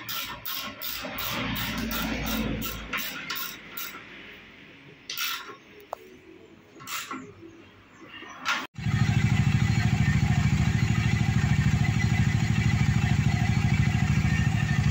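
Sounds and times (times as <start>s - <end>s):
faint workshop noise: 0.0s - 8.8s
motorcycle engine idling: 8.8s - 14.9s.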